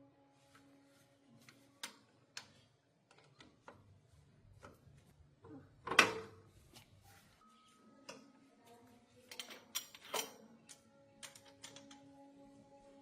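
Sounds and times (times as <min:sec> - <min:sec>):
clicks and knocks on metal parts: 0:09.3 - 0:12.1.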